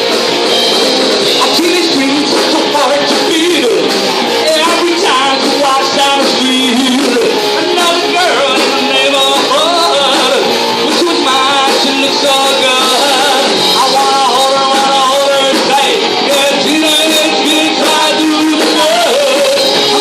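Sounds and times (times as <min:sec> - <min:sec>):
electric guitar: 0:00.0 - 0:20.0
live rock band playing: 0:00.0 - 0:20.0
person singing: 0:01.3 - 0:20.0.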